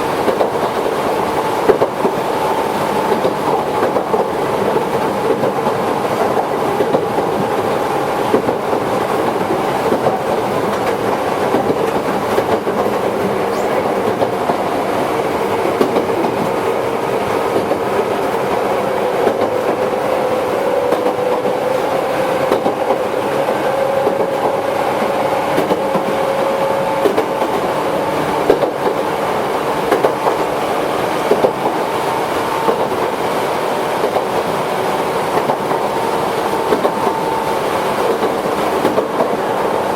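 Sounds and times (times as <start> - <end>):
electric train rumbling: 0.0 - 39.9
train motor whine: 1.4 - 33.0
wheels clicking over rail: 15.5 - 20.2, 20.9 - 24.6, 27.0 - 27.8, 28.4 - 29.1, 29.8 - 30.6, 36.6 - 37.4, 38.0 - 39.5.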